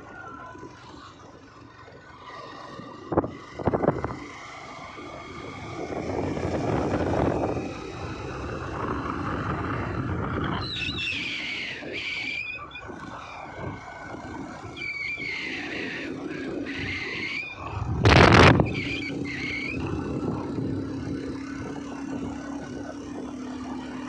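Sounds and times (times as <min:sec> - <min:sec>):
vehicle driving on road: 0:00.0 - 0:24.0
brief high squeal: 0:18.5 - 0:19.9.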